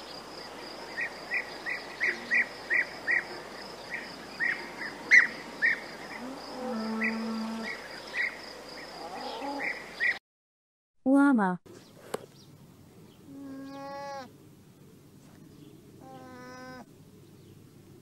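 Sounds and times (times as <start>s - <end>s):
insect drone: 0.0s - 10.2s
small birds chirping: 0.0s - 10.2s, 11.7s - 14.4s, 15.2s - 17.8s
cow mooing: 6.2s - 7.8s, 9.0s - 9.7s.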